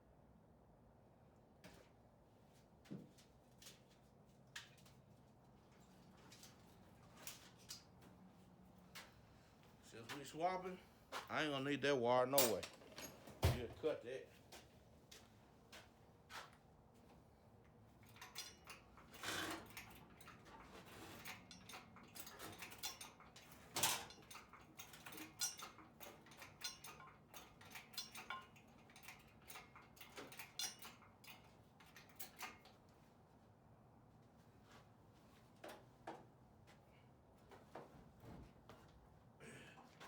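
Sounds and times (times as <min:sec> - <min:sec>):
metallic tool clinks and knocks: 0:21.2 - 0:32.7.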